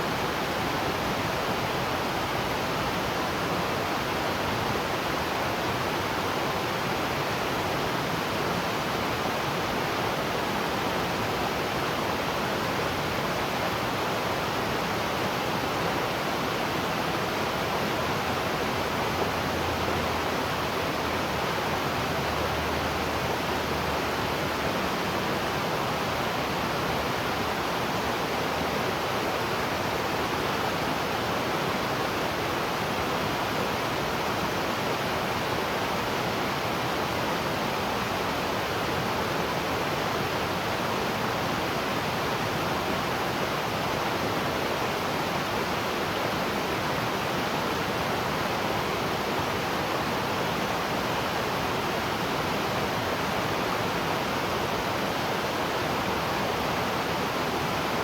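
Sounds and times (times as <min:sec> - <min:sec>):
waterfall rushing: 0:31.9 - 0:58.0.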